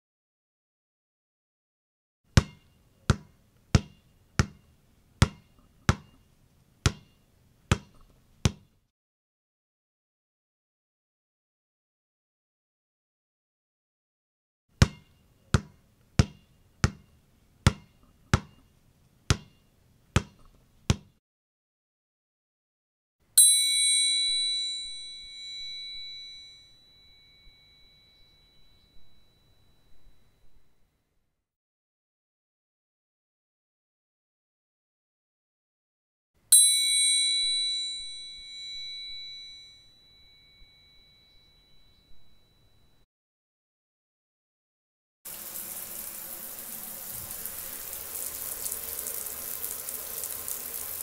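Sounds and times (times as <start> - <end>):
high metallic ding: 23.4 - 30.6, 36.5 - 43.0.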